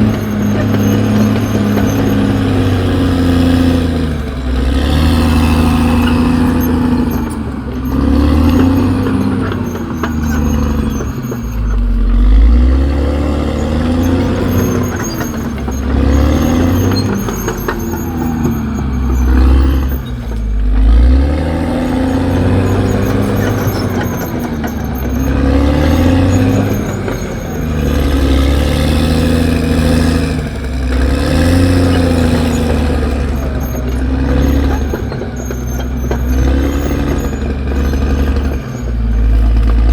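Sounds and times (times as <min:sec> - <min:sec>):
bulldozer diesel engine working: 0:00.0 - 0:39.9.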